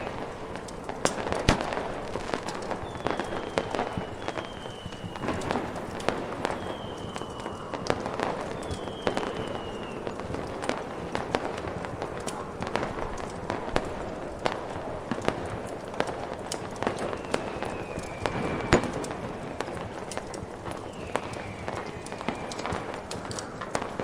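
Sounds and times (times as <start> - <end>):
fireworks popping and crackling: 0.0 - 24.0
firework whistles falling in pitch: 2.5 - 10.8, 16.8 - 24.0.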